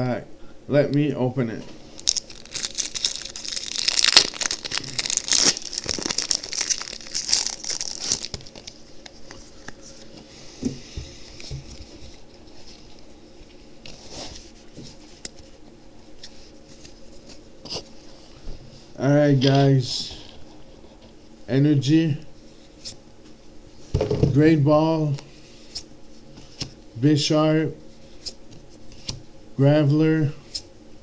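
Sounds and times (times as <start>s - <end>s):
wrapper and cards rustling: 1.8s - 10.2s
foil pack tearing and crinkling: 1.9s - 9.8s.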